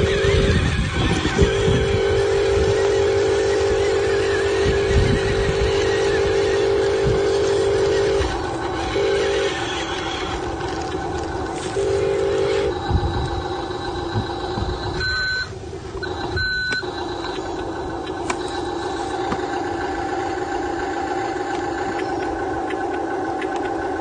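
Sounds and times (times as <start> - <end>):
electric motors whining: 0.0 - 24.0
short beeps: 15.0 - 16.9.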